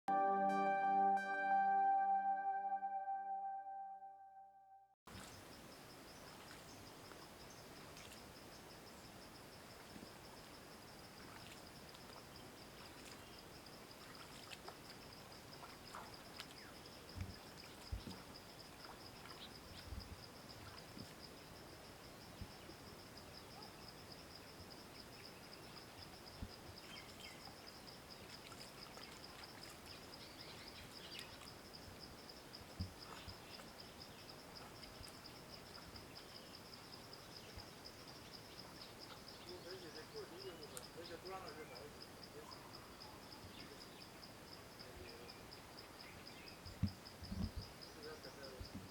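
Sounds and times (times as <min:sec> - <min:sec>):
faint bird chirps: 0:38.2 - 0:44.1.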